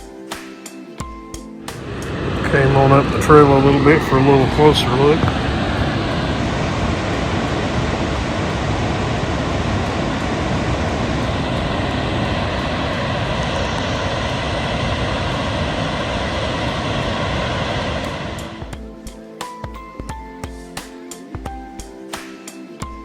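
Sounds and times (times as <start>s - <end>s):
waterfall roar: 1.7s - 18.7s.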